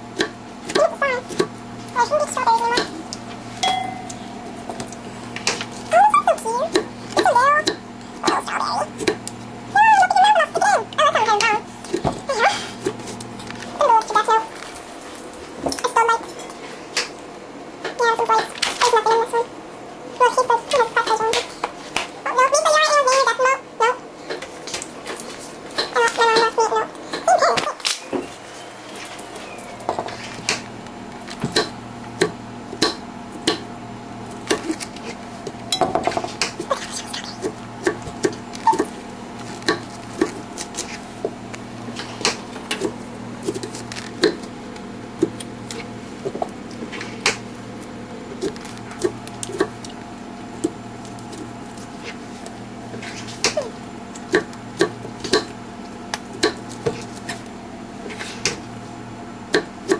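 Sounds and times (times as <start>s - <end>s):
steady low hum: 0.0s - 59.9s
utensils clinking against dishes: 3.6s - 4.2s.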